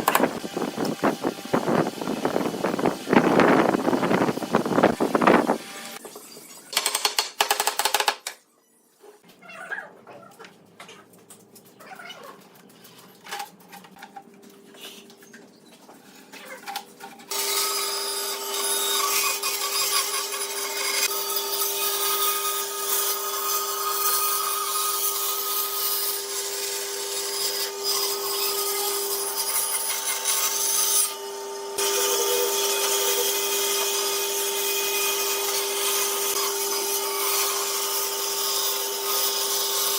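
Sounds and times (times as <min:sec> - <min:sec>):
power tool cutting wood: 0:00.0 - 0:06.9, 0:17.3 - 0:39.9.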